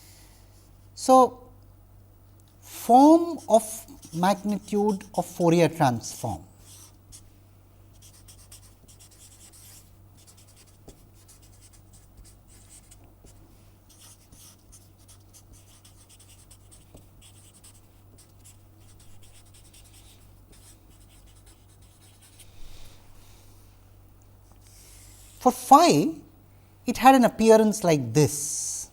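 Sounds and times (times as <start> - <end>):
low electrical hum: 0.0 - 28.9
pen scratching on paper: 3.3 - 5.2, 6.6 - 7.2, 8.0 - 22.4.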